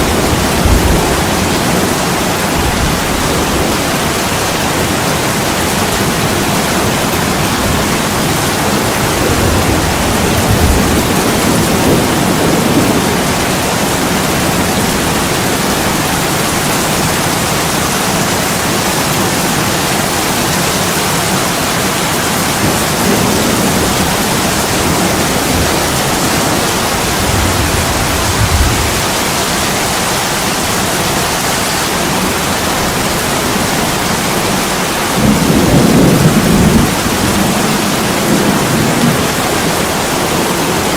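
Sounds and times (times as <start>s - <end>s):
heavy rain on a window: 0.0s - 40.9s.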